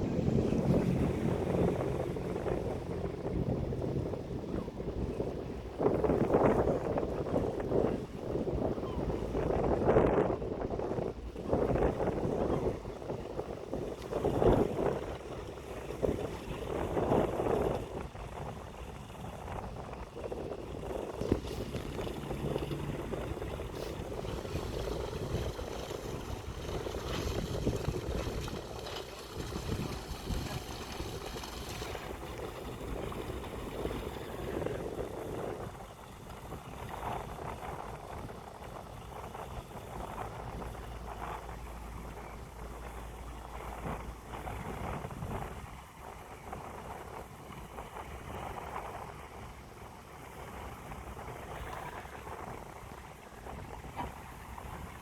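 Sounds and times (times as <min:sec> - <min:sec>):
tug engine running: 0:00.0 - 0:05.8, 0:20.8 - 0:34.7
wind noise: 0:00.0 - 0:49.5.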